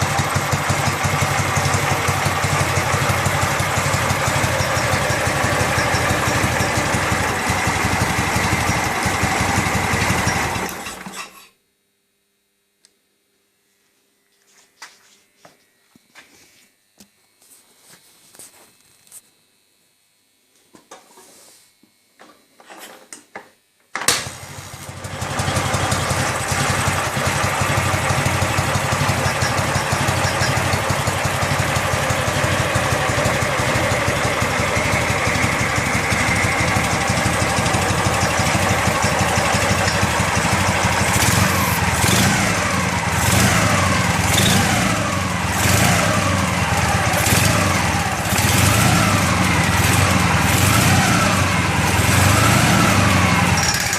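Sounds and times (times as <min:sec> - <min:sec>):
motorcycle engine revving: 0:00.0 - 0:11.2, 0:24.2 - 0:53.9.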